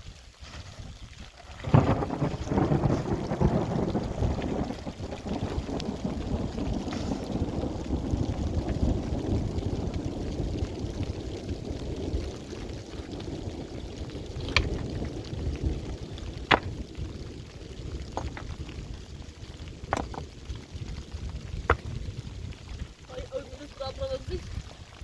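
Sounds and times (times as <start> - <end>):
rain: 0.0 - 25.0
wind buffeting microphone: 0.4 - 25.0.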